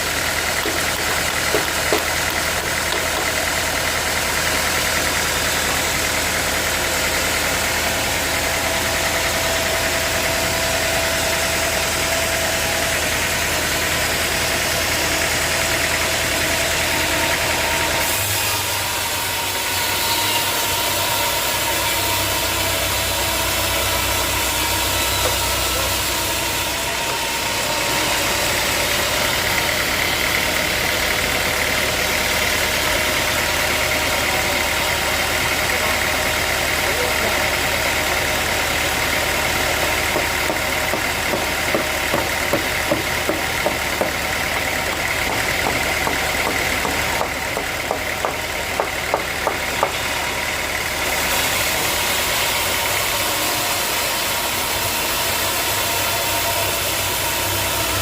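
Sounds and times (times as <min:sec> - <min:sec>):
high machinery hiss: 0:16.4 - 0:47.2.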